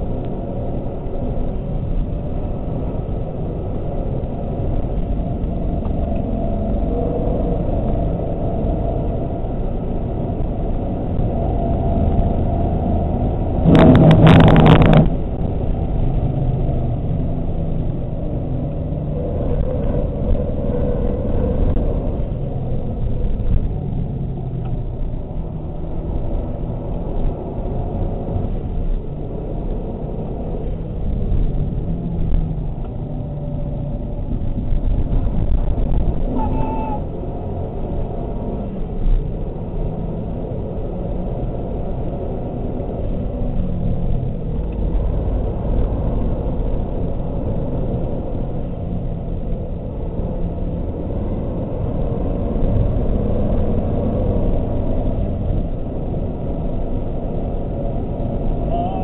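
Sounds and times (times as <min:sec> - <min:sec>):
engine drone inside car: 0:00.0 - 0:59.0
road and wind noise: 0:00.0 - 0:59.0.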